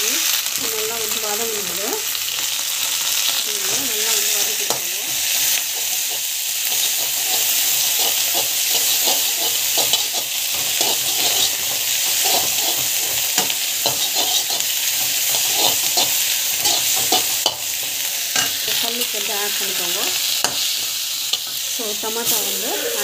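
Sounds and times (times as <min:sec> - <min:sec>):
vegetables sizzling in hot oil: 0:00.0 - 0:23.0
spatula scraping a pan: 0:04.7 - 0:19.0, 0:20.2 - 0:23.0.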